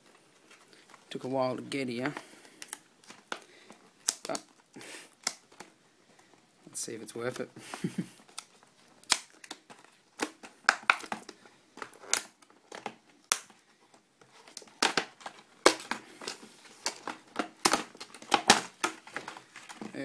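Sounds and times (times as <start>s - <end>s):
packaging crinkling and tearing: 2.6s - 5.8s, 8.2s - 20.0s.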